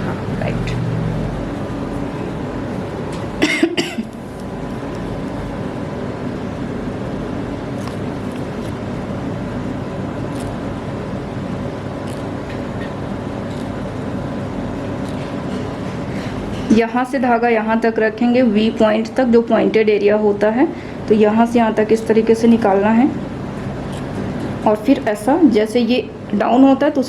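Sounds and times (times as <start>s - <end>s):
steady background hum: 0.0s - 27.0s
person coughing: 3.4s - 4.1s.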